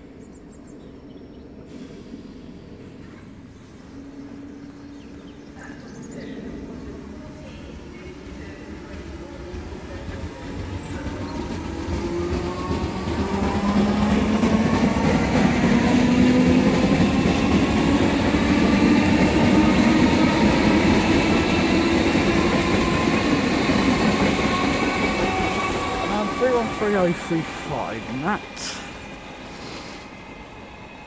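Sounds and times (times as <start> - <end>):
rumble of wheels on rails: 2.4 - 27.2.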